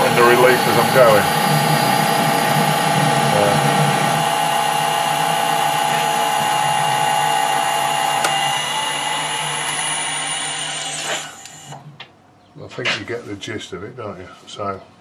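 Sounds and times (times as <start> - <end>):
metal lathe whine: 0.0 - 11.8
lathe click: 8.1 - 8.6, 9.6 - 10.0, 10.8 - 11.8.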